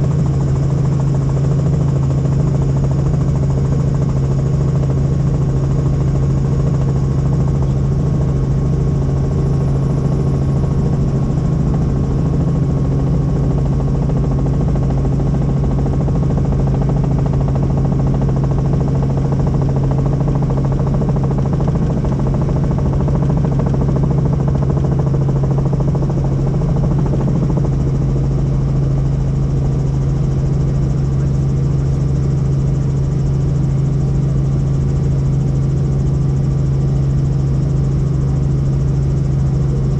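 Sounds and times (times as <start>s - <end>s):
helicopter drone: 0.0s - 39.9s.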